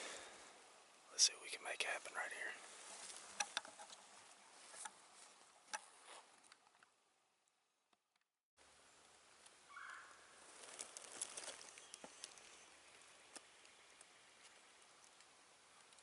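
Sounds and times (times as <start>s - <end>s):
faint rustles: 1.7s - 6.8s, 10.4s - 16.0s
distant turkey gobbling: 9.7s - 10.2s.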